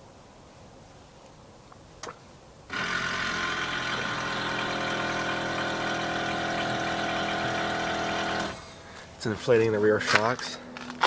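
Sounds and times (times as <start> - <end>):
air compressor motor humming: 2.7 - 9.2.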